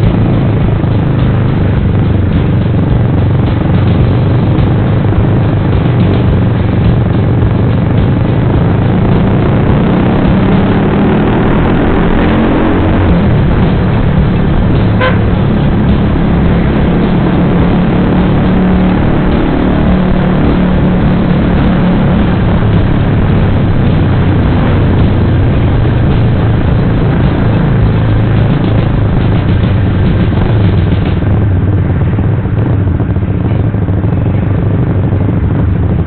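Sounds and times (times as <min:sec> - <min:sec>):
motorcycle running: 0:00.0 - 0:36.0
horn beep: 0:14.9 - 0:15.4.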